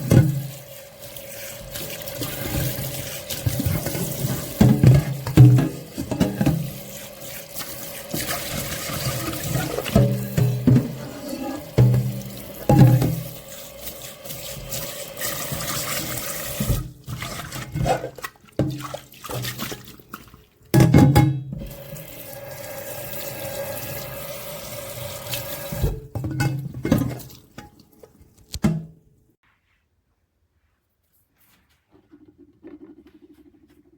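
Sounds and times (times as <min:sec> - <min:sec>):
pot clattering in a sink: 0:00.0 - 0:00.7, 0:01.5 - 0:13.6, 0:14.4 - 0:22.0, 0:25.5 - 0:29.0
tap running into a sink: 0:01.8 - 0:07.0, 0:07.6 - 0:13.4.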